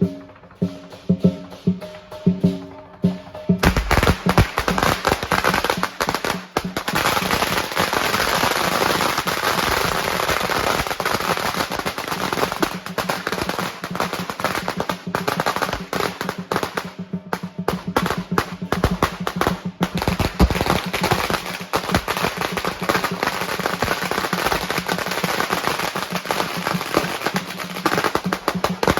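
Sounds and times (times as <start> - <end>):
firecrackers popping: 3.6 - 28.9.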